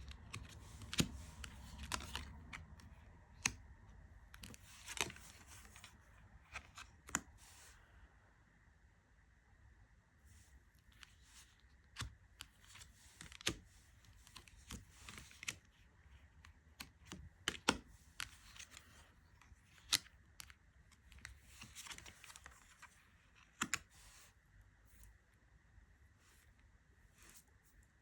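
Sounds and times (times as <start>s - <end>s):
cards sliding and brushing: 0.0s - 2.6s, 4.4s - 7.8s, 21.2s - 25.2s, 26.2s - 27.8s.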